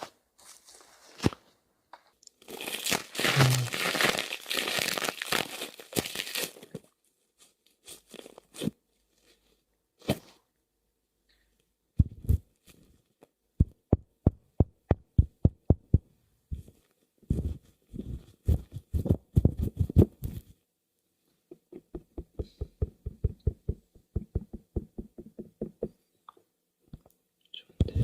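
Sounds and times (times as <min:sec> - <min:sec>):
taps and knocks on hard object: 0:21.5 - 0:26.0.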